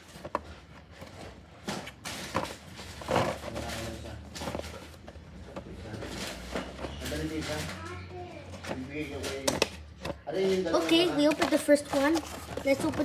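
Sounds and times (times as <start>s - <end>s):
packaging knocks and scrapes: 0.0s - 13.0s
packaging rustling: 8.6s - 13.0s.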